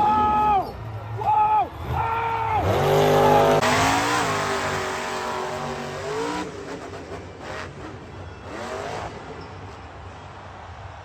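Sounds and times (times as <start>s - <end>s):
truck engine revving: 2.6s - 9.6s.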